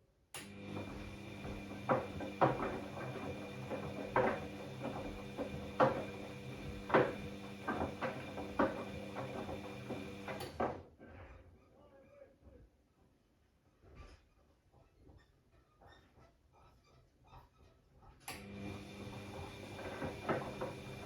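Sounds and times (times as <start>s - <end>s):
washing machine motor running: 0.5s - 10.6s, 18.4s - 21.0s
laundry clunking in drum: 0.7s - 10.8s, 19.1s - 21.0s.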